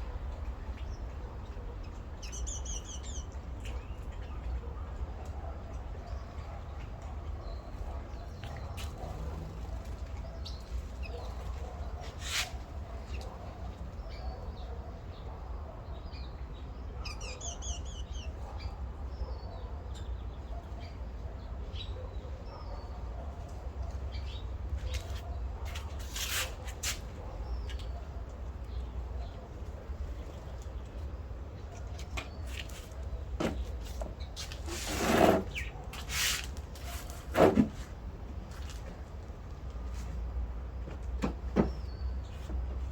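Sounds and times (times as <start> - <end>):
small birds chirping: 0.0 - 4.6, 5.8 - 21.0, 26.8 - 34.7, 35.4 - 36.9.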